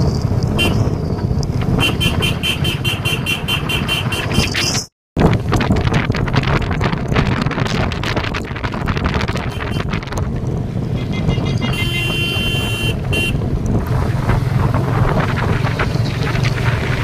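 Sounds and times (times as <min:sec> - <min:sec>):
wind buffeting microphone: 0:00.0 - 0:17.0
horn sounding: 0:01.8 - 0:04.4, 0:11.0 - 0:13.4.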